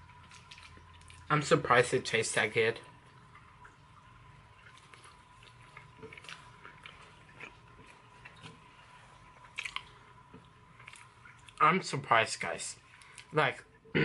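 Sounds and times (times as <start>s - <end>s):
person chewing food: 0.0s - 1.3s, 3.0s - 11.6s.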